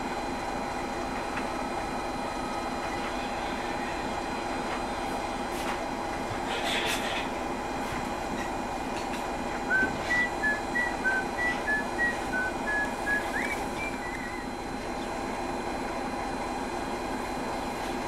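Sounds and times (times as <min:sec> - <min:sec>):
diesel train hum: 0:00.0 - 0:18.0
short two-pitch whistled notes: 0:09.7 - 0:14.5.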